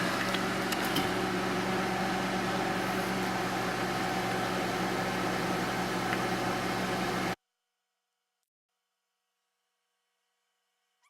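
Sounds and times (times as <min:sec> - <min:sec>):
microwave oven humming: 0:00.0 - 0:07.4.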